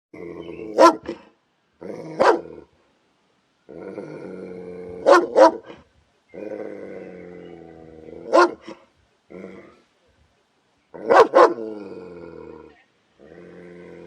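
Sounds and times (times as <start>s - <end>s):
dog barking: 0.8s - 1.2s, 2.2s - 2.4s, 5.0s - 5.8s, 8.3s - 8.8s, 11.1s - 11.6s
dog growling: 3.7s - 5.3s, 6.3s - 9.8s, 11.0s - 14.0s.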